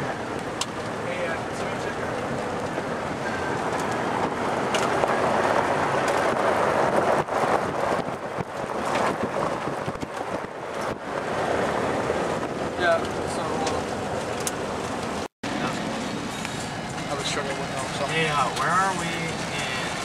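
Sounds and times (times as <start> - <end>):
gusty wind around car: 0.0 - 20.0
tyre and road noise: 0.0 - 20.0.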